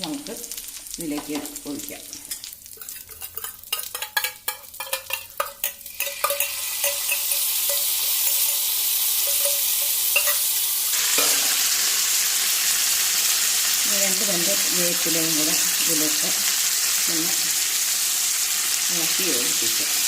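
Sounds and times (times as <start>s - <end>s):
loud sizzle of liquid in oil: 0.0s - 20.0s
spatula scraping a pan: 2.3s - 11.8s.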